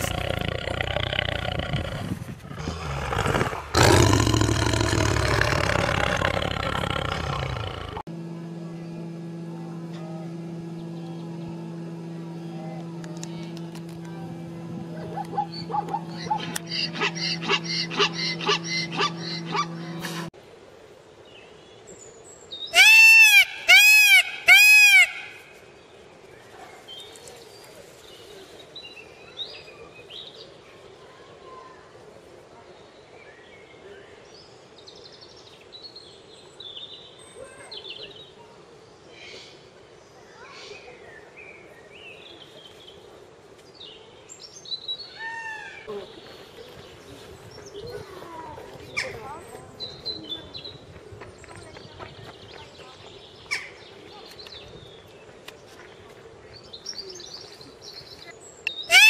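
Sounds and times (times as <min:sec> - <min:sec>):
peacock calling loudly: 0:15.1 - 0:20.0, 0:22.7 - 0:25.4.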